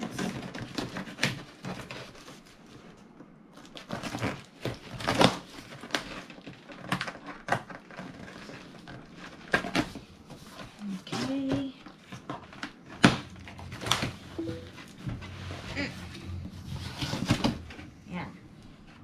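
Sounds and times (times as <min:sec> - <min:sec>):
things being handled and unpacked: 0:00.0 - 0:15.6.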